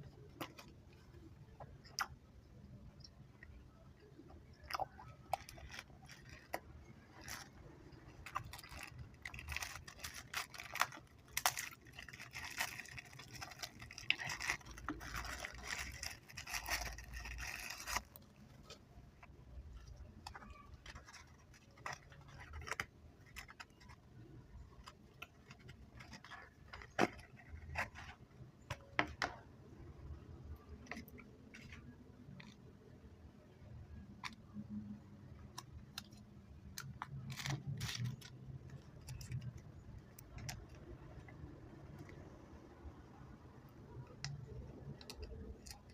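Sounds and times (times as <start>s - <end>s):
snack wrapper crinkling: 4.6s - 18.8s.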